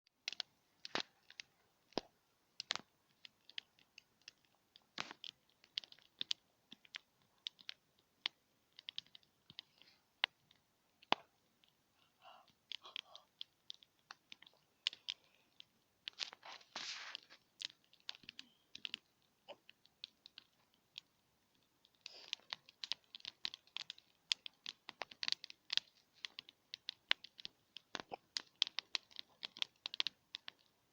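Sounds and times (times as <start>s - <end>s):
campfire crackling: 0.1s - 30.9s.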